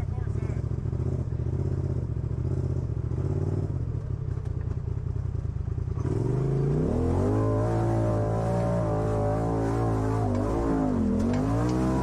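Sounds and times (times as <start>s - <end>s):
vehicle engine running at low revs: 0.0s - 12.0s.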